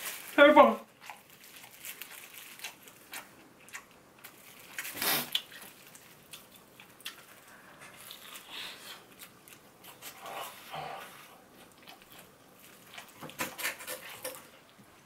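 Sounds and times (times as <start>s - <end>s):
crunchy chewing: 0.9s - 14.9s.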